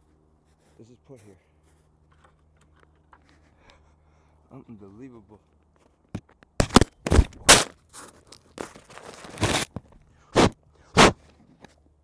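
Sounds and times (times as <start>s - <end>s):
footsteps crunching in snow: 6.6s - 11.2s.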